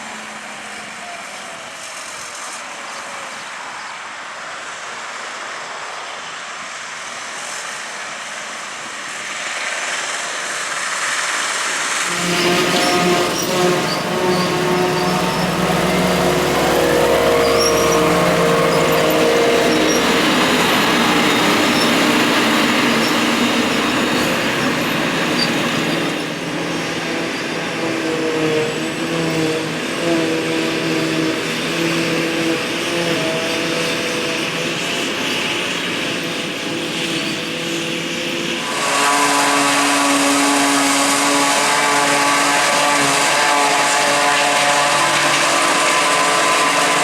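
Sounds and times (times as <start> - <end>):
heavy diesel engines droning: 0.0 - 47.0.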